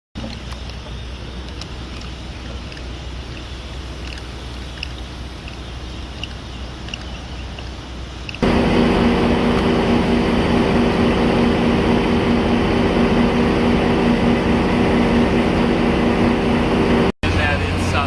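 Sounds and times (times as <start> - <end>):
diesel locomotive idling: 0.2 - 18.0
outdoor noise: 0.2 - 18.0.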